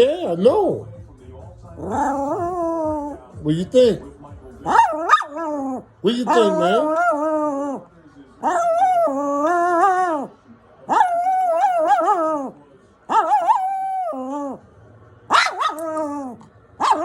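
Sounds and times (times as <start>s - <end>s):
dog whine-howling: 1.8s - 3.2s, 4.7s - 7.8s, 8.4s - 10.3s, 10.9s - 14.6s, 15.4s - 17.0s.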